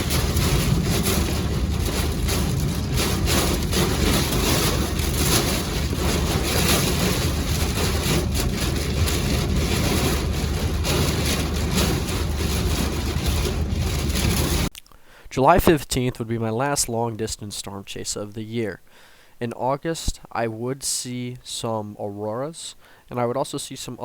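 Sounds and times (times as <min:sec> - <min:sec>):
wind buffeting microphone: 0:00.0 - 0:14.7.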